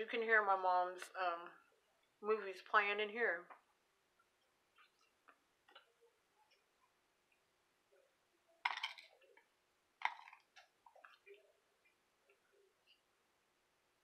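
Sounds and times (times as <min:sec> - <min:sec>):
quiet chewing: 0:04.2 - 0:07.5, 0:09.0 - 0:13.1.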